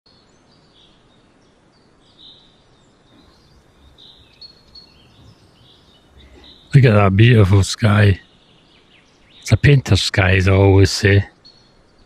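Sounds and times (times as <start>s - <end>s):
birds chirping faintly: 0.1s - 12.0s
soft low bumps: 3.1s - 8.0s.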